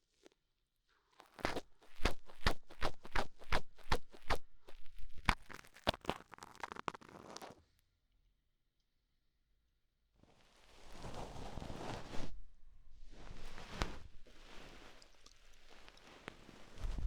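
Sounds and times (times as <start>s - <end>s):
scratchy scrapes on microphone: 10.8s - 12.6s.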